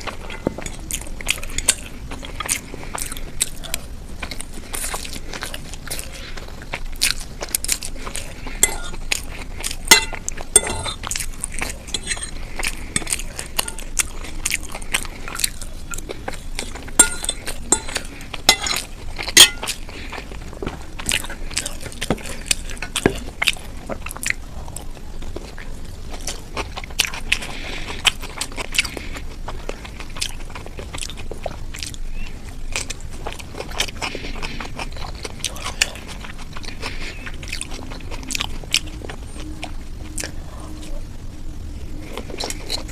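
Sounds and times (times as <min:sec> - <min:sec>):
chewing and crunching: 0:00.0 - 0:42.9
utensil clinking on dish: 0:00.2 - 0:01.9, 0:08.6 - 0:09.0, 0:09.9 - 0:11.0, 0:11.8 - 0:12.4, 0:17.0 - 0:19.8.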